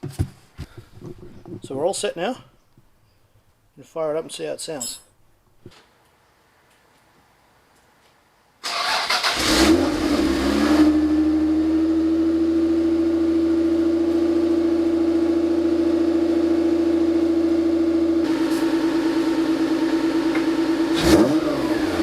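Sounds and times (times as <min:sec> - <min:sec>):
car engine starting and idling: 0:08.6 - 0:22.0.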